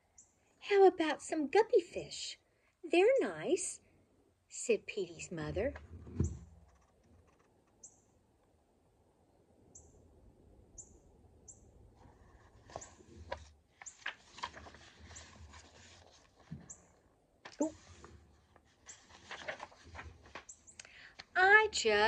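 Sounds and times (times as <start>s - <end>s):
book pages turning: 12.0s - 21.3s.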